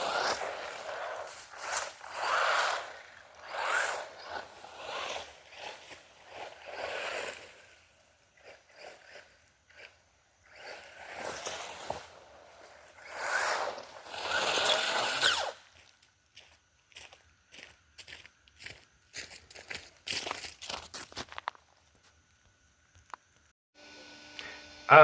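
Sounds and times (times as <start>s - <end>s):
electric motor revving: 0.0s - 15.6s.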